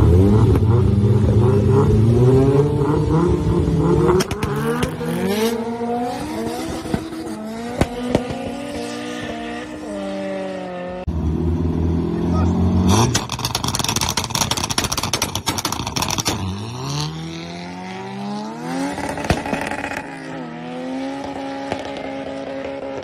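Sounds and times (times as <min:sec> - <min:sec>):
car engines revving high: 0:00.0 - 0:23.0
sharp cracks: 0:13.0 - 0:16.6, 0:19.0 - 0:20.0.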